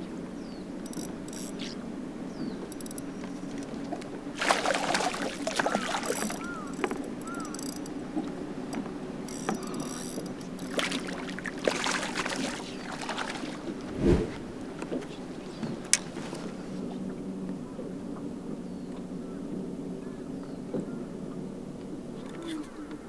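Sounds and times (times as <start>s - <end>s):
boat motor low hum: 0.0s - 18.9s
rustling noise: 13.6s - 15.1s.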